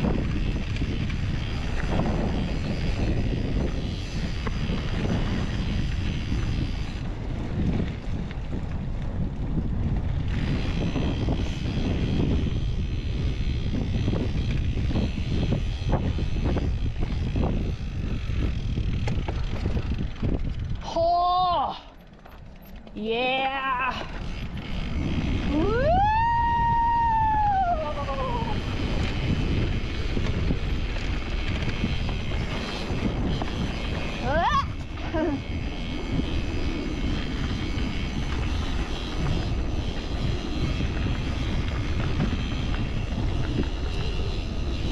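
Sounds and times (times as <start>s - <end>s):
wind on microphone: 0.0s - 21.9s, 22.9s - 44.9s
bike rattling over rough ground: 0.0s - 44.9s
tyres rolling on dirt: 0.0s - 44.9s
rider whooping: 20.8s - 22.1s, 23.0s - 30.0s, 32.3s - 44.9s.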